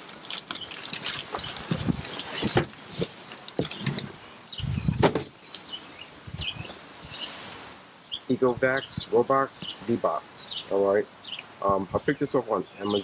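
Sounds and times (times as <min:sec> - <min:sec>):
cardboard box scraping and rustling: 0:01.2 - 0:05.4, 0:07.0 - 0:07.7.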